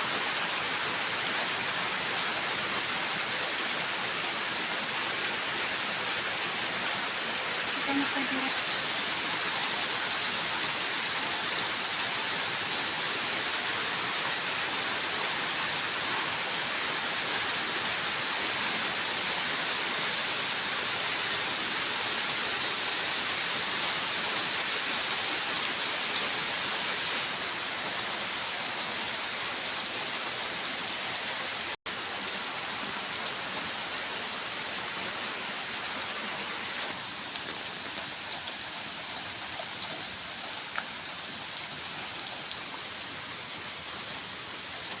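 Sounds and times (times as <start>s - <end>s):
heavy rain: 0.0s - 45.0s.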